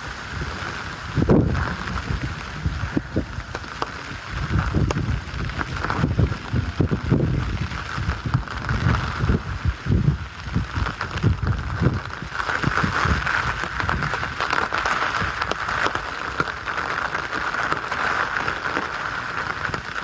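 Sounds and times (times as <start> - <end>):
wind gusts buffeting microphone: 0.0 - 16.0
rain hiss: 0.0 - 20.0.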